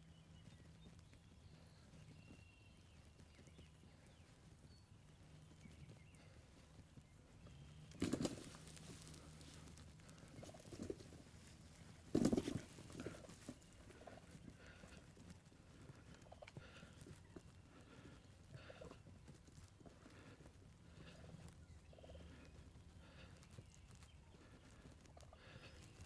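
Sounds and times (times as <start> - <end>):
faint bird chirps: 0.0 - 15.2.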